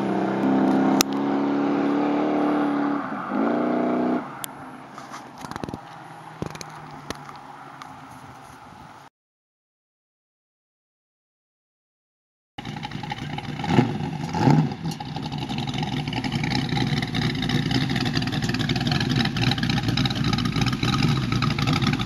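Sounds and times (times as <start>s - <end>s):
truck engine revving: 0.0s - 4.6s, 12.6s - 22.0s.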